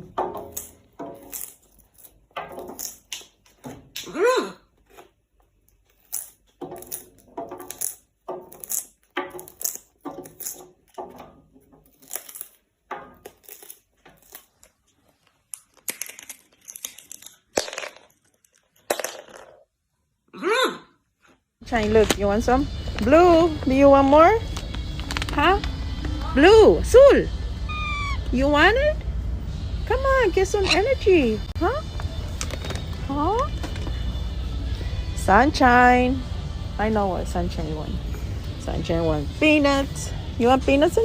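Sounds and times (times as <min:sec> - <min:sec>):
parrot raspy calls and chatter: 0:27.6 - 0:28.4, 0:30.5 - 0:31.1
parrot squawk: 0:27.6 - 0:28.4, 0:30.5 - 0:31.0.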